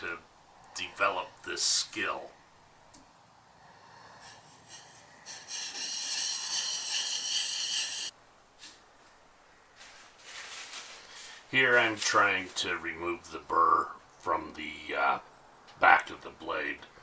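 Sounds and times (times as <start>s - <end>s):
blade scraping on sharpening stone: 4.7s - 8.1s.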